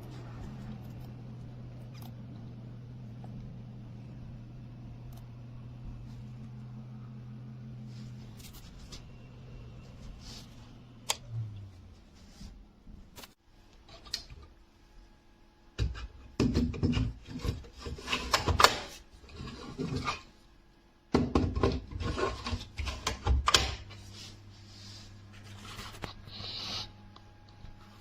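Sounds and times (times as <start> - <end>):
faint steady hum: 0.0 - 28.0
scraping and rubbing: 16.8 - 18.6, 19.2 - 20.3, 21.8 - 23.2.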